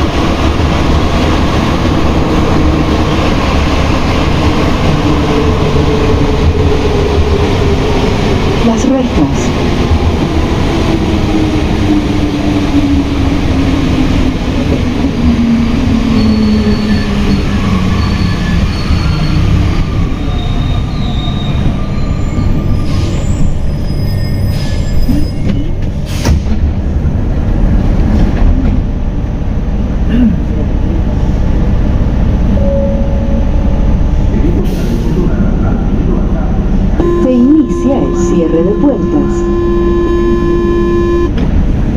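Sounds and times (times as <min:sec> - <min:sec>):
train low rumble: 0:00.0 - 0:41.9
metro train braking whine: 0:14.7 - 0:26.2, 0:32.5 - 0:35.6, 0:36.7 - 0:41.4.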